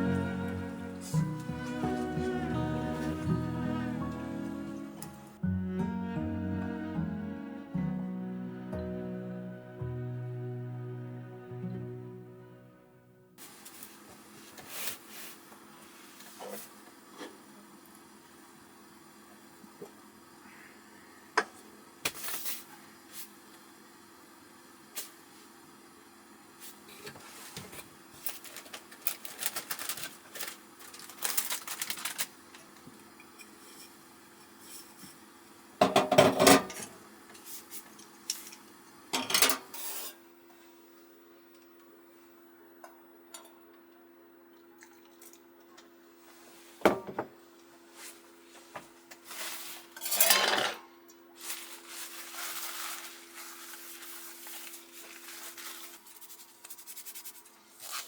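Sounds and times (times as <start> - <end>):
cookware clinking and clattering: 35.8 - 36.9, 39.2 - 40.1, 50.0 - 50.8.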